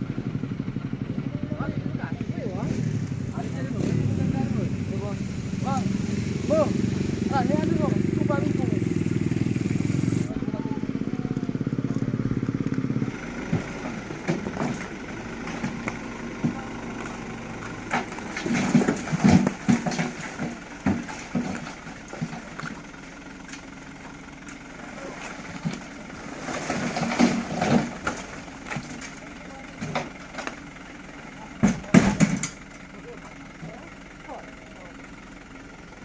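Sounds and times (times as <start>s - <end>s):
vehicle engine running: 0.0s - 36.0s
bursts of voices: 10.3s - 11.8s
scattered knocks: 17.9s - 22.4s, 31.6s - 32.6s.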